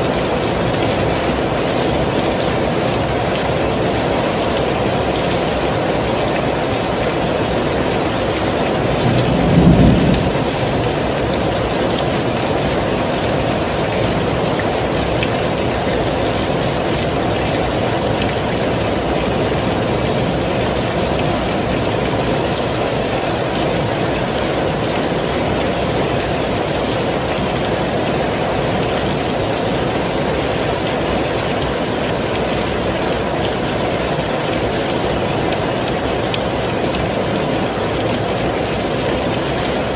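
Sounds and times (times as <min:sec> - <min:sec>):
heavy rain falling: 0:00.0 - 0:39.9
low rumble of thunder: 0:08.6 - 0:13.4.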